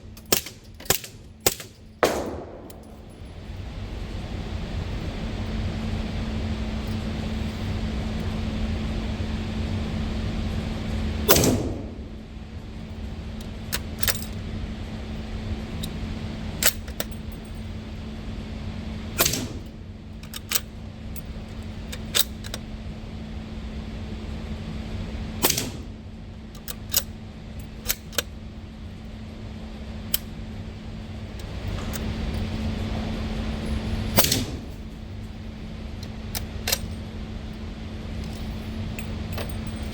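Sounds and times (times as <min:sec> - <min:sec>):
metallic clicks: 0:00.2 - 0:03.3, 0:36.0 - 0:37.0
suppressed gunshots: 0:00.4 - 0:03.2, 0:11.3 - 0:12.3, 0:34.2 - 0:34.8.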